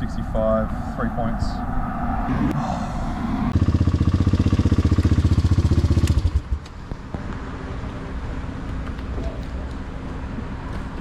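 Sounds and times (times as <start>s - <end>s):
motorcycle engine running: 3.5s - 7.0s.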